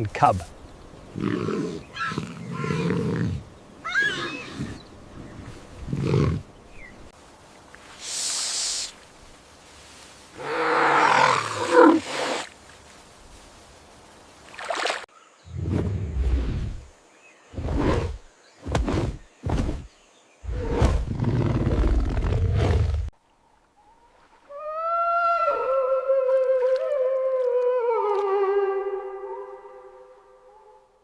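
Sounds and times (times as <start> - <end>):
lion hiss: 7.8 - 9.1, 10.3 - 12.6
lion growls and grunts: 20.5 - 23.1.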